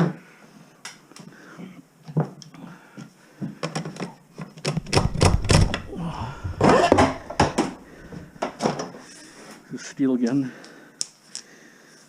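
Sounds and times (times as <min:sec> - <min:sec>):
debris knocking and rattling: 0:04.7 - 0:08.9.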